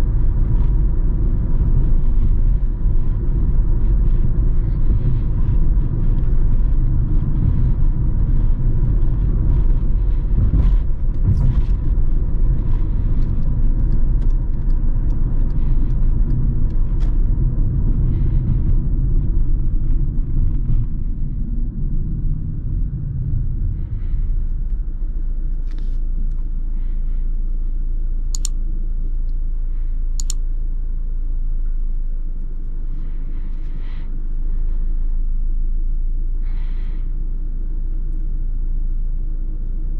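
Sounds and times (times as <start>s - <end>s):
loud low rumble: 0.0s - 39.9s
sharp clicks: 28.4s - 28.6s, 30.2s - 30.4s.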